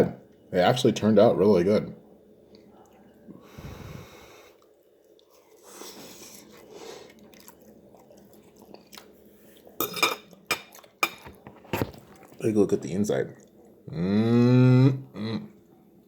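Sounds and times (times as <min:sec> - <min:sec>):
person chewing food: 0:02.5 - 0:12.4, 0:13.3 - 0:13.9.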